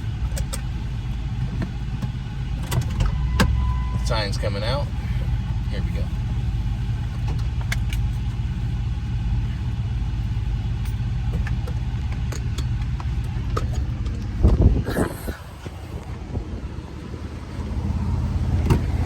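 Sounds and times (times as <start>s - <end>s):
truck engine running: 0.0s - 19.0s
faint clicks and rattles: 10.7s - 14.7s.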